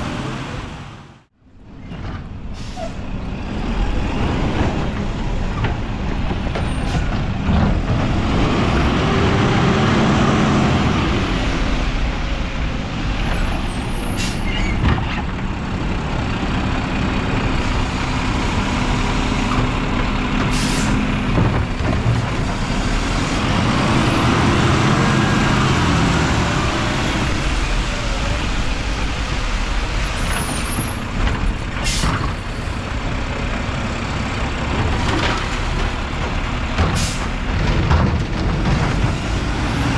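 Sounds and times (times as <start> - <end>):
air brake hisses: 2.6 - 3.0, 20.5 - 21.0
garbage truck engine revving: 3.4 - 14.3, 15.5 - 39.9.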